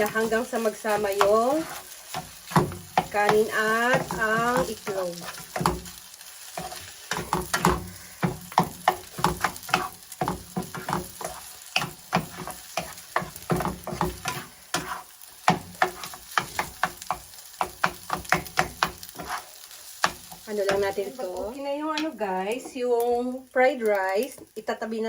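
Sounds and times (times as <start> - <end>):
utensil knocking on pan: 0.0 - 5.9, 7.1 - 19.4, 20.0 - 21.0
rice sizzling in oil: 0.0 - 25.0.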